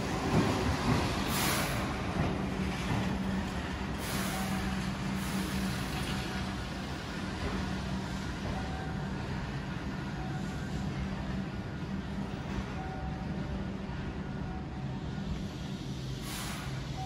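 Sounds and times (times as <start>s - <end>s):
electric train rolling rumble: 0.0s - 17.0s
brief hisses: 16.2s - 16.9s.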